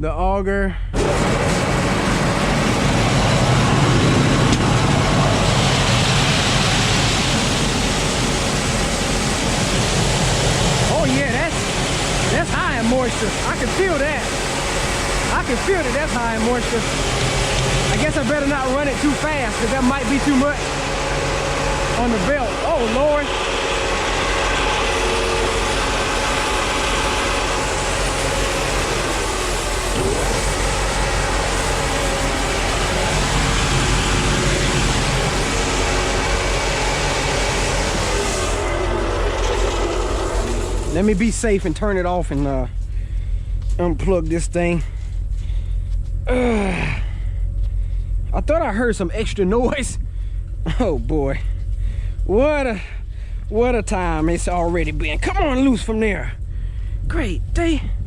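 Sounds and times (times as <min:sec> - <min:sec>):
grain auger rumbling: 0:00.9 - 0:58.0
rush of grain: 0:01.0 - 0:42.4.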